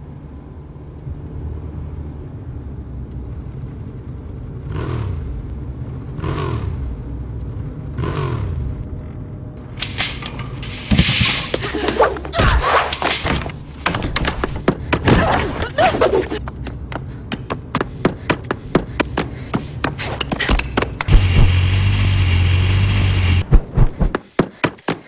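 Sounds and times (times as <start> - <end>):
engine revving: 4.5 - 9.2, 21.0 - 23.5
harsh noise burst with thuds: 20.5 - 22.0, 23.3 - 24.2.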